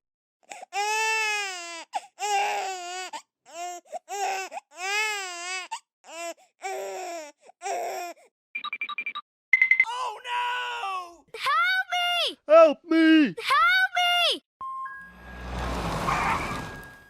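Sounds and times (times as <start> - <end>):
baby crying: 0.5 - 8.2.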